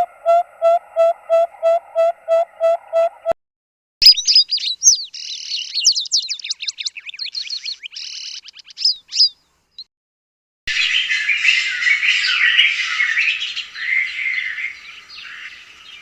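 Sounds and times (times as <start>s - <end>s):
bird repeating clear notes: 4.0s - 9.4s
bird twittering and chattering: 4.0s - 9.9s, 10.7s - 16.0s.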